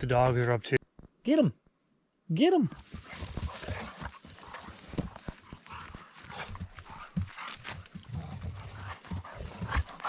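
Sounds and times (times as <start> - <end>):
dog paws thudding on ground: 2.8 - 10.0.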